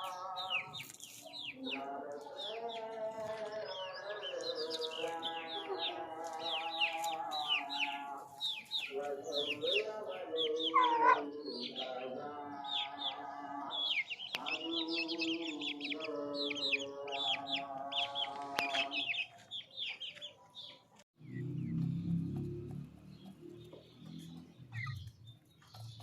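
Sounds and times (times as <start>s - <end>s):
small birds chirping: 0.0s - 26.0s
roosters crowing: 2.4s - 19.2s.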